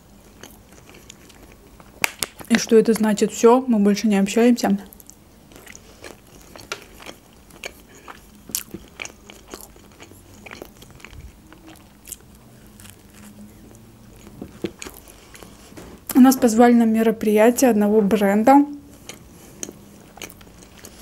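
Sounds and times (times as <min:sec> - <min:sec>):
person chewing food: 0:00.2 - 0:02.5, 0:04.9 - 0:15.8, 0:18.9 - 0:21.0.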